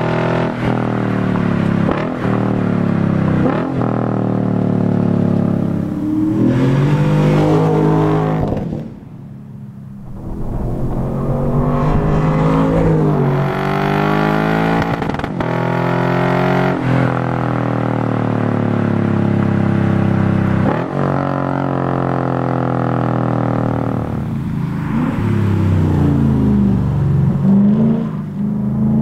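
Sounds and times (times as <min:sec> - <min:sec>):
car engine accelerating: 0:09.8 - 0:16.6.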